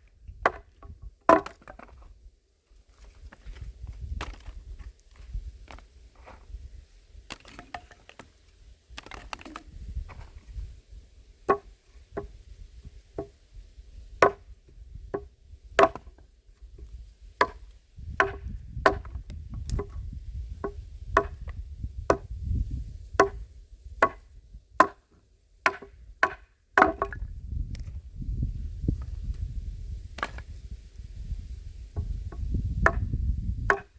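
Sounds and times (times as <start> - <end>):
axe chopping firewood: 0.4 - 2.1, 4.0 - 4.6, 9.0 - 10.2, 11.5 - 12.4, 14.2 - 16.2, 17.4 - 20.0, 20.6 - 22.4, 23.1 - 27.2, 30.2 - 30.5, 32.0 - 33.9.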